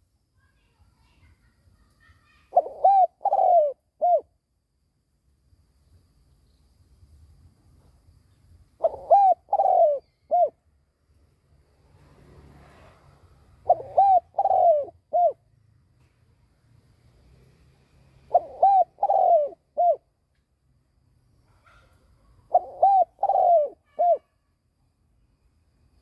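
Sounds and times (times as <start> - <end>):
dove cooing: 2.5 - 4.3, 8.8 - 10.6, 13.6 - 15.4, 18.2 - 20.1, 21.6 - 24.4.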